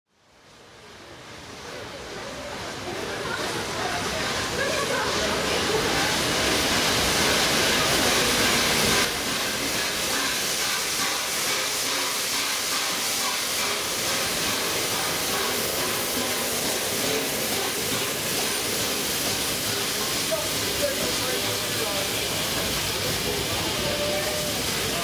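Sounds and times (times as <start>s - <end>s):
steam locomotive hissing: 0.2s - 25.0s.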